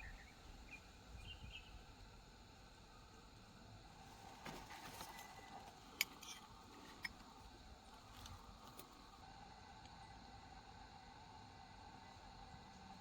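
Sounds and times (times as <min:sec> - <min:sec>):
tools and metal parts clicking: 0:05.0 - 0:07.4.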